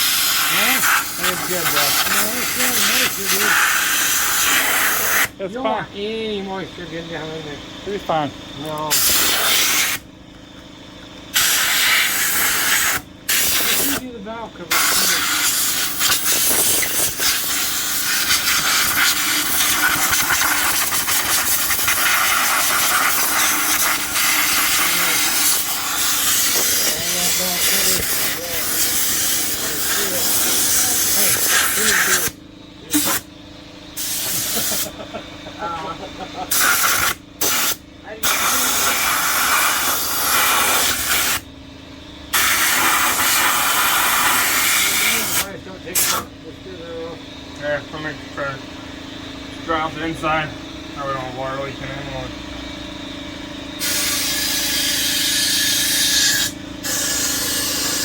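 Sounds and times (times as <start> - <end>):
compressed air hissing from blow gun: 0.0 - 5.4, 8.9 - 10.0, 11.3 - 14.0, 14.7 - 33.2, 34.0 - 35.0, 36.5 - 41.4, 42.3 - 46.3, 53.8 - 58.0.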